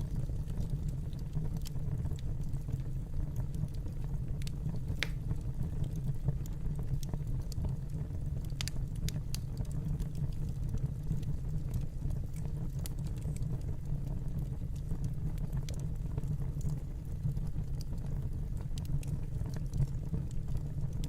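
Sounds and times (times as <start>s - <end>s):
fireplace crackling: 0.0s - 21.0s
low rumble of burning: 0.0s - 21.0s
sharp pops of fire: 4.9s - 5.5s.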